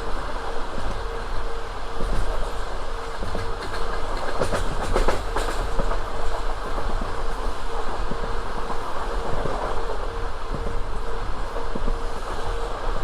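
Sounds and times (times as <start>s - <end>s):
steady train hum: 0.0s - 13.0s
train wheels clattering over rails: 0.1s - 13.0s.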